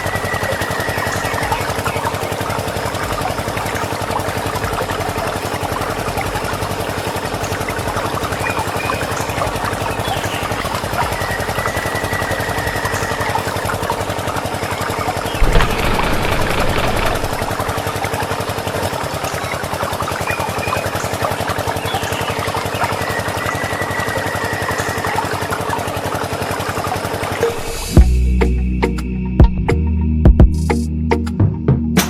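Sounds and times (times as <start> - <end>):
small motor running: 0.0 - 27.3
sudden thump: 15.4 - 17.8.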